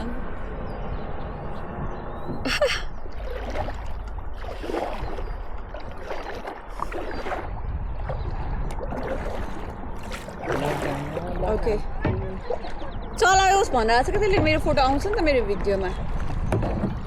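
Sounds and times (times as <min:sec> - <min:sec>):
paddle strokes in water: 0:03.0 - 0:12.9, 0:14.2 - 0:17.0.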